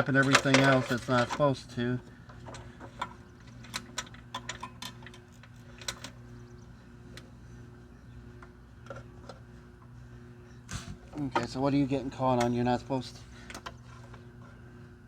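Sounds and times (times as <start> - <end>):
steady low hum: 0.0 - 15.0
small clicks and metallic rattles: 2.4 - 6.2.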